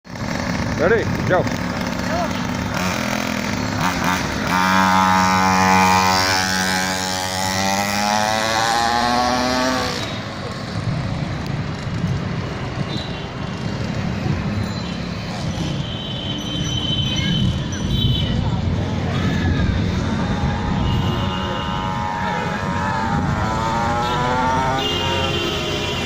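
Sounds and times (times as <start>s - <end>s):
small motorbike engine revving: 0.1s - 10.2s, 19.2s - 26.0s.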